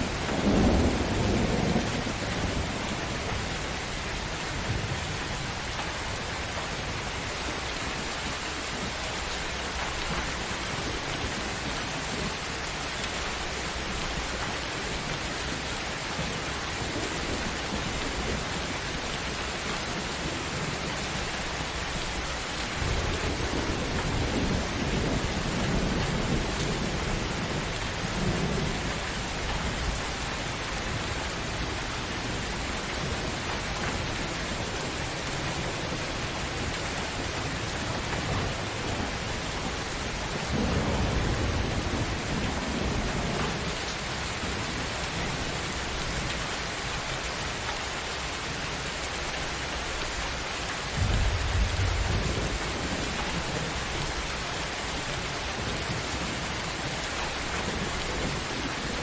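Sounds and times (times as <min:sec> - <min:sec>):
thunder rumbling: 0:00.0 - 0:05.0, 0:22.6 - 0:35.0, 0:37.5 - 0:43.8, 0:50.9 - 0:59.0
heavy rain: 0:00.0 - 0:59.0.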